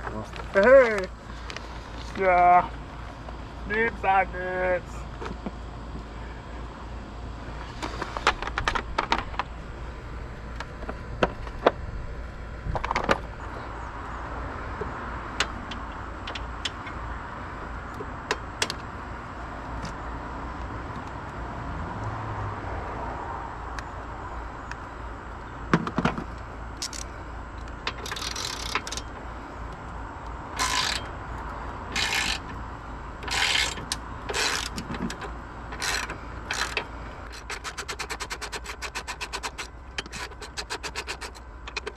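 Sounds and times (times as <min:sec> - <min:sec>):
steady low hum: 0:00.0 - 0:41.9
socket wrench ratcheting: 0:26.8 - 0:27.0, 0:27.9 - 0:29.1, 0:30.6 - 0:31.1, 0:31.9 - 0:32.6, 0:33.2 - 0:41.9
metal tools clinking: 0:30.6 - 0:31.1.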